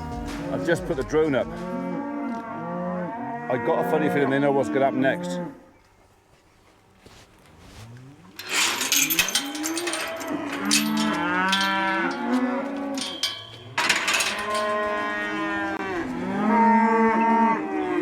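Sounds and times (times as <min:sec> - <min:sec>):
cattle mooing and bellowing: 0:00.0 - 0:05.7, 0:07.7 - 0:18.0
knocks and clatter: 0:08.4 - 0:15.3.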